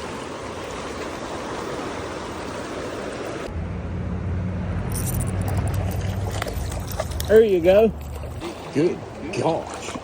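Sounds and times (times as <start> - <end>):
stream water rushing: 0.0 - 10.0
low rumble: 3.5 - 7.3.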